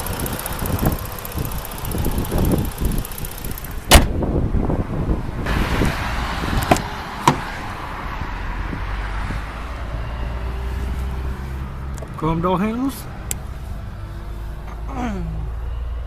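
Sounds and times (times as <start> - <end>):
low car rumble: 0.0 - 16.0
car panel slamming shut: 3.8 - 4.2, 6.6 - 7.5
sharp latch clicks: 3.9 - 4.2.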